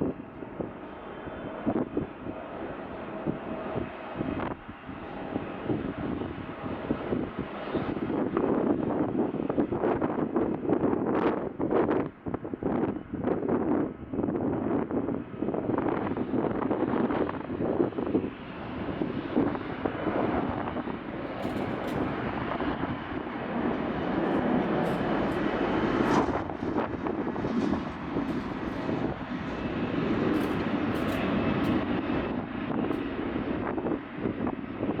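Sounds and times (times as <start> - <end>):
jet engines at takeoff power: 0.0 - 35.0.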